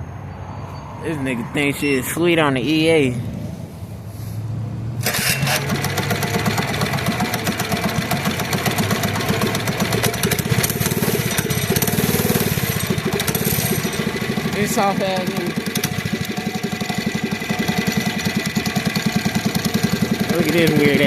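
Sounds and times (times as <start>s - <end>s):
small engine running: 5.0s - 21.0s.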